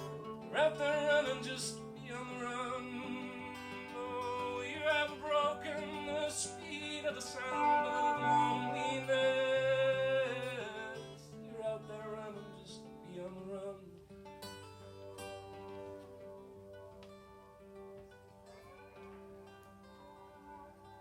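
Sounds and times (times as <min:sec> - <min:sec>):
country band playing live: 0:00.0 - 0:11.0.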